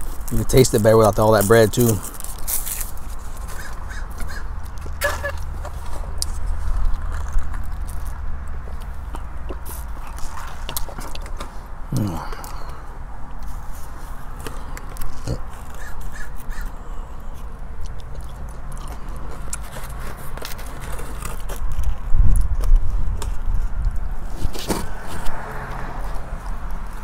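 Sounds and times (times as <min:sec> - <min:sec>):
person chewing with wet smacks: 0:06.2 - 0:13.6, 0:14.2 - 0:24.1.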